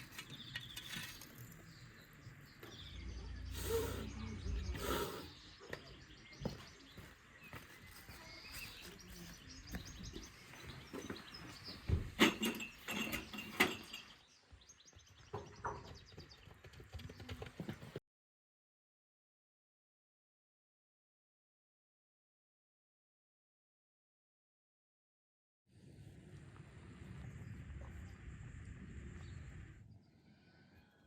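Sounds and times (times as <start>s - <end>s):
birds chirping: 0.0s - 18.0s
knocks and clatter: 11.8s - 14.2s.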